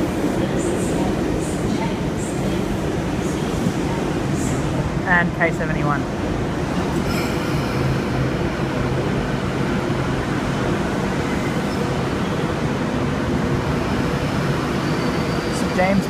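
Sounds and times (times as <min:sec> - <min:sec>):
electric train rumble and hum: 0:00.0 - 0:16.0.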